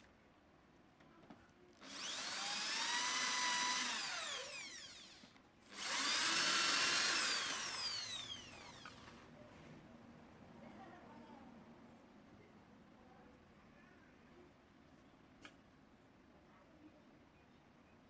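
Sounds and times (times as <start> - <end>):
power tool motor whining: 1.8 - 9.1.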